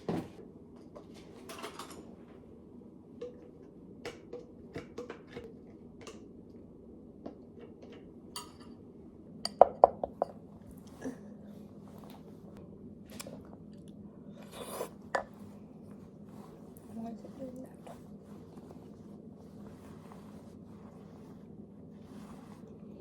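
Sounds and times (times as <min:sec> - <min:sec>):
kitchenware clinking: 0:07.8 - 0:08.8.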